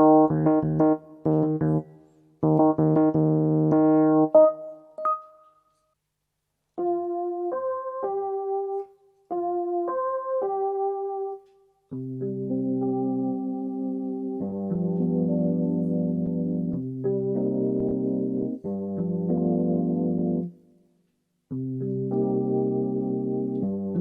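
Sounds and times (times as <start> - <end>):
electric piano chords: 0.0 - 5.5, 6.8 - 20.6, 21.5 - 24.0.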